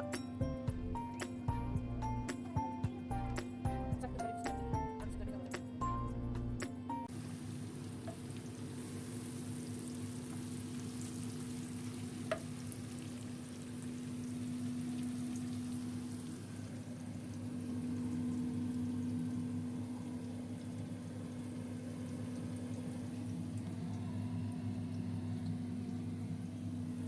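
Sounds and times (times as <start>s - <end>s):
background music: 0.0s - 7.1s
low hum: 0.4s - 6.7s, 21.4s - 27.0s
food sizzling in a pan: 7.1s - 20.5s.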